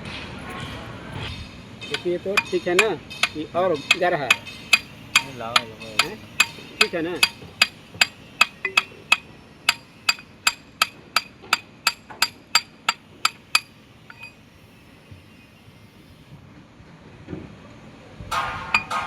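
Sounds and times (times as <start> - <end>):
hammer tapping on metal: 1.9 - 14.4, 18.7 - 19.0.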